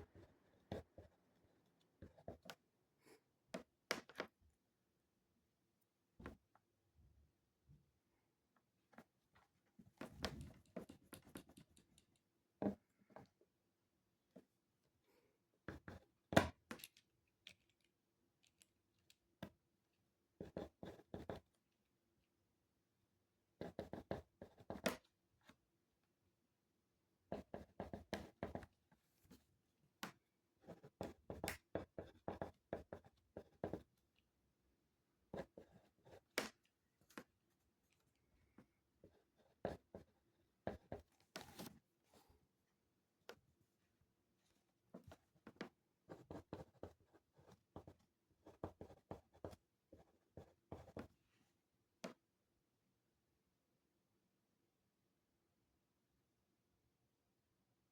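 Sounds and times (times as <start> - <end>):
pen scratching on paper: 20.4 - 21.5, 23.6 - 24.9, 27.3 - 28.7, 30.6 - 33.9, 35.3 - 36.4, 39.0 - 41.0, 45.1 - 51.1.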